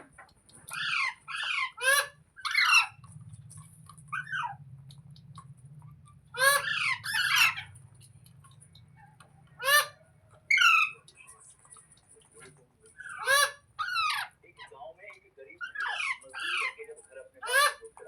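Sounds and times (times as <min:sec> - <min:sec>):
faint low hum: 0:00.0 - 0:18.0
parrot screeching: 0:00.7 - 0:03.1, 0:04.1 - 0:04.6, 0:06.3 - 0:07.8, 0:09.0 - 0:11.0, 0:13.0 - 0:14.4, 0:15.6 - 0:16.8, 0:17.4 - 0:17.8.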